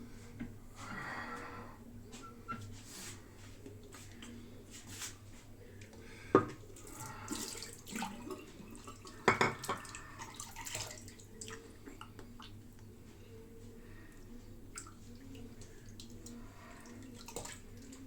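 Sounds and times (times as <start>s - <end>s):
water splashing at sink: 6.4s - 12.6s, 14.7s - 18.0s.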